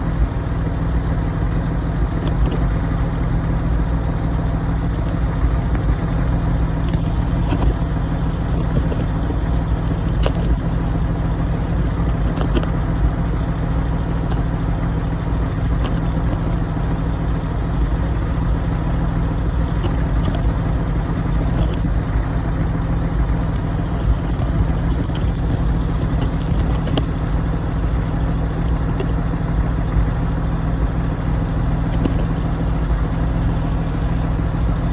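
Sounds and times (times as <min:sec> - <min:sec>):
car engine idling: 0:00.0 - 0:34.9
faint clicks: 0:01.6 - 0:03.6, 0:19.6 - 0:34.8.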